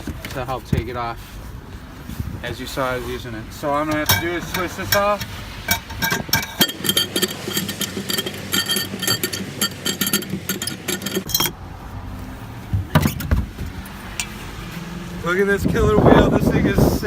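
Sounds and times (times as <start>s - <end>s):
metallic clinking and rattling: 3.8s - 11.6s.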